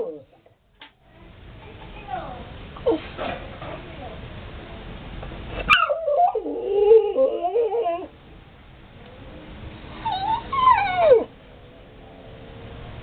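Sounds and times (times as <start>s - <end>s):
pet animal whining: 5.7s - 8.2s, 9.0s - 11.3s.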